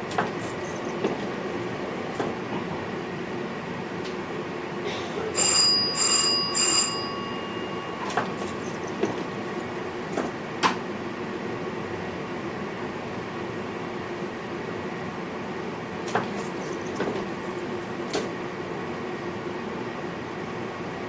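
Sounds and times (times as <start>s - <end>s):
train cab rumble: 0.0s - 21.0s
bell signal chiming: 5.4s - 8.9s.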